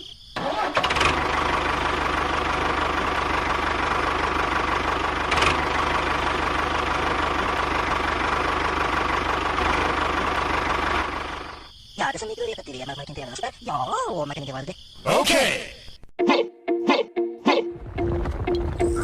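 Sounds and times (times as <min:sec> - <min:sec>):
engine idling with knock: 0:01.0 - 0:11.6.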